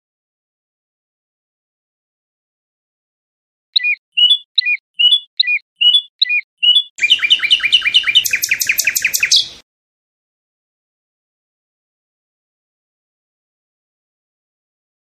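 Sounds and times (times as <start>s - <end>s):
songbird singing: 3.8s - 9.6s.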